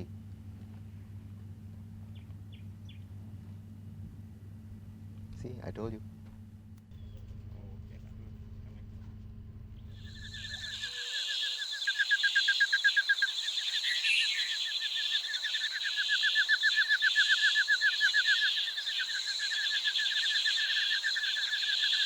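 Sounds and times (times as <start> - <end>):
high-pitched buzzing drone: 0.0 - 12.0
rapid trilling call: 9.9 - 22.0.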